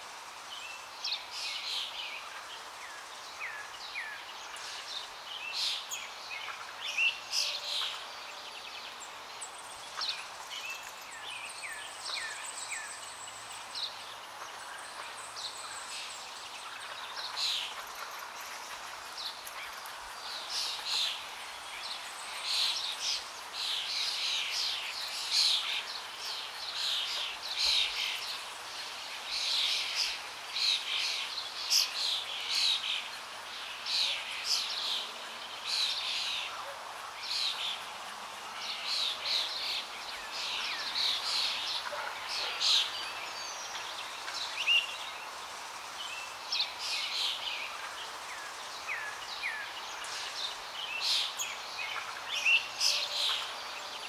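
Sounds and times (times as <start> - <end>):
soft steady hiss: 0.0 - 54.0
small birds chirping: 0.2 - 54.0.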